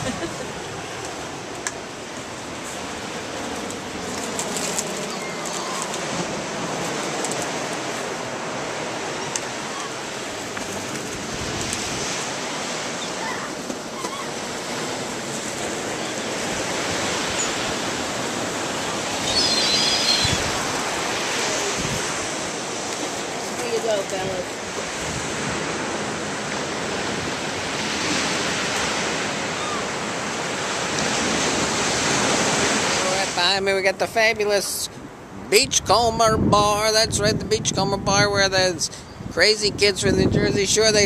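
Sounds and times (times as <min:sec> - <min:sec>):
surf washing onto beach: 0:00.0 - 0:41.0
gull calls: 0:05.0 - 0:06.2, 0:09.1 - 0:10.0, 0:12.9 - 0:14.5, 0:18.7 - 0:21.8, 0:29.4 - 0:30.0.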